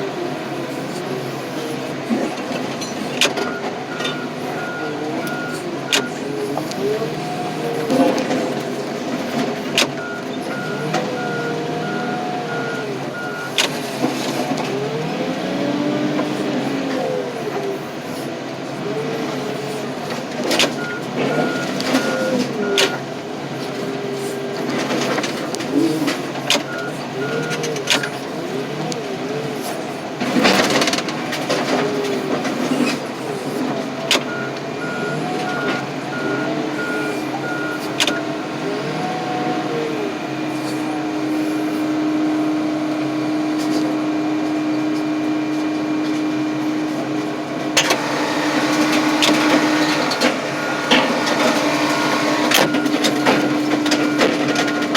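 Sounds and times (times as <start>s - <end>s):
diesel engines revving: 0.0s - 54.9s
reversing alarm beeping: 2.7s - 17.3s, 19.0s - 47.0s, 47.7s - 54.9s.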